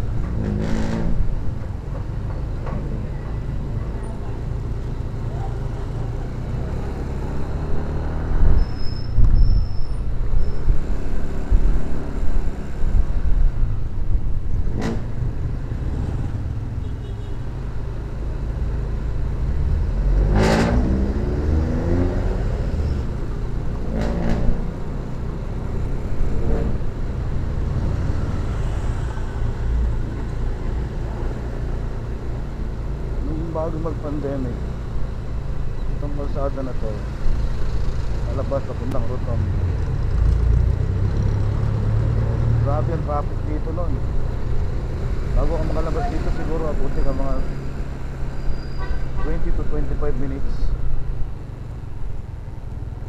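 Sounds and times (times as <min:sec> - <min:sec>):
road noise: 0:00.0 - 0:53.0
vehicle passing close by: 0:19.6 - 0:23.2, 0:39.1 - 0:43.1.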